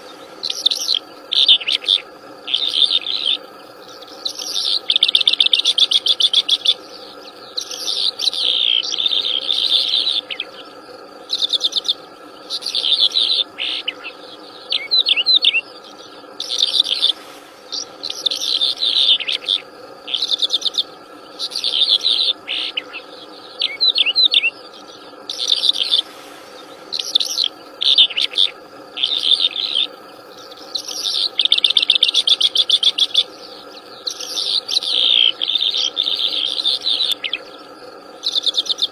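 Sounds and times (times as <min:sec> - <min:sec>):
faint background drone: 0:00.0 - 0:38.9
songbird chattering and trilling: 0:00.0 - 0:38.9.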